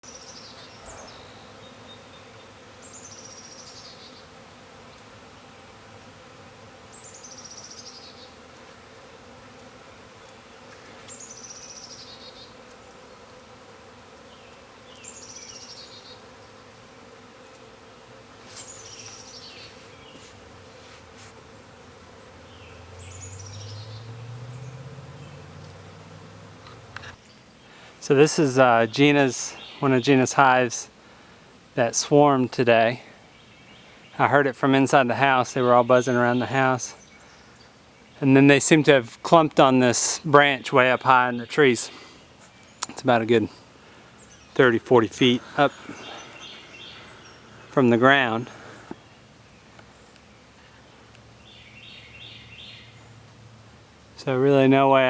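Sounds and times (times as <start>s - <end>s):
bird singing: 0.0s - 4.4s, 6.9s - 8.4s, 11.1s - 12.6s, 14.2s - 16.6s, 18.6s - 20.2s, 22.3s - 27.8s, 28.4s - 30.2s, 33.2s - 38.4s, 42.5s - 53.3s
bees buzzing: 0.0s - 55.0s
low drone rising in pitch: 22.4s - 27.2s.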